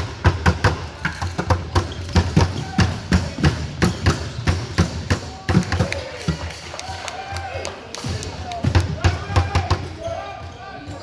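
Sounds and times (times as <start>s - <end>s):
basketballs bouncing on gym floor: 0.0s - 6.2s.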